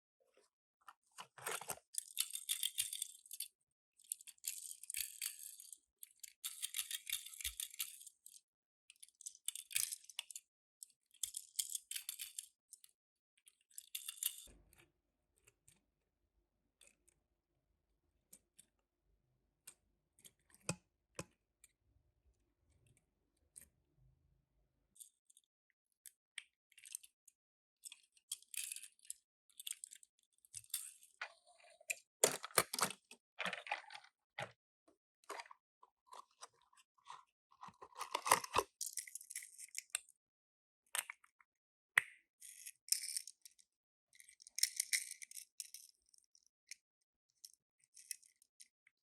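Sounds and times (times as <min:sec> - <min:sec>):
toy packaging crinkling: 0:01.3 - 0:01.8, 0:32.2 - 0:34.5, 0:36.2 - 0:39.0.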